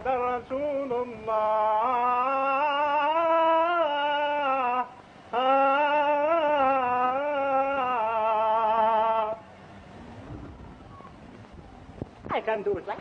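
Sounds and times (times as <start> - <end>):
faint hiss: 0.0 - 13.0.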